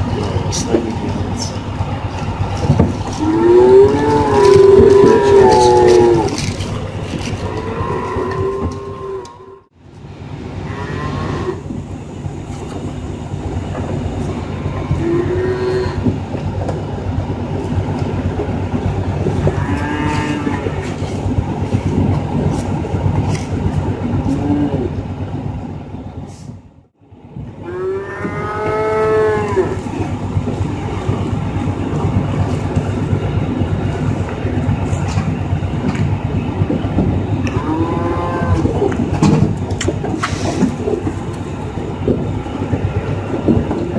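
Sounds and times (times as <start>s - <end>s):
truck low rumble: 0.0s - 43.9s
calves mooing: 2.9s - 9.7s, 10.6s - 11.7s, 14.5s - 16.1s, 19.4s - 21.0s, 27.6s - 30.1s, 37.4s - 39.0s.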